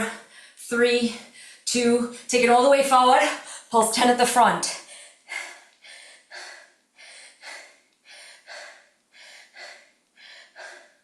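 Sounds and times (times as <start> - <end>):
woman breathing hard: 0.0 - 0.6, 4.8 - 11.0.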